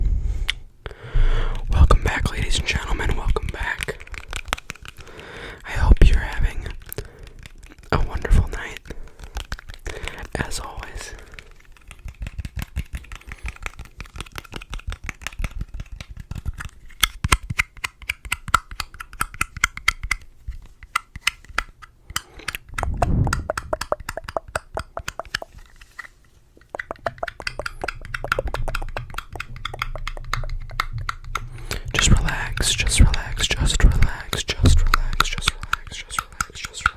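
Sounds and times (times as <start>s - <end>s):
fast crisp tapping: 6.2s - 20.3s, 20.9s - 26.0s, 26.6s - 36.9s.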